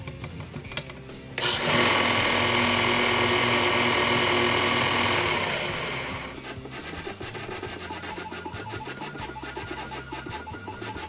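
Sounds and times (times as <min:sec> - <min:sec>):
bench sander motor whining: 0:01.4 - 0:06.4.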